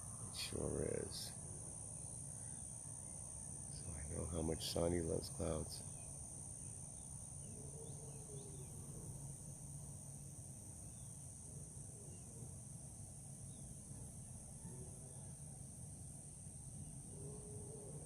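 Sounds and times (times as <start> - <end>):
crickets chirping: 0.0 - 18.0
faint bird chirps: 2.0 - 9.2, 13.4 - 15.6.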